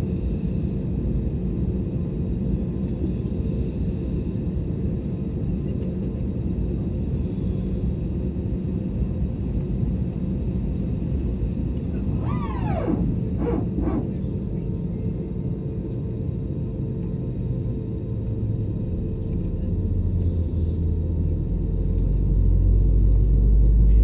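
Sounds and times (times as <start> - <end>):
airplane cabin rumble: 0.0 - 24.0
falling voice-like sound: 12.0 - 14.2
brief pitched sounds: 12.1 - 14.2.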